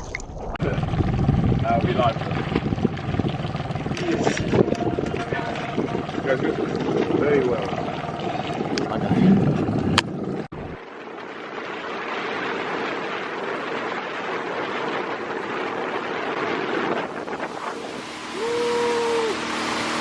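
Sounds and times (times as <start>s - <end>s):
rushing water: 0.0s - 20.0s
wind on microphone: 0.0s - 20.0s
steady tone: 0.6s - 10.8s
steady low hum: 0.6s - 20.0s.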